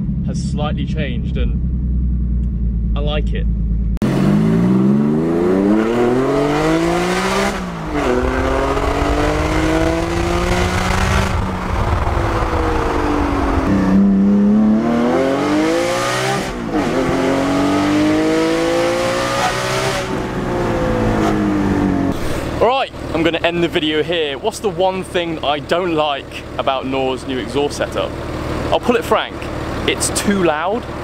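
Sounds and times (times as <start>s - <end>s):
sports car engine accelerating hard: 0.0s - 31.0s.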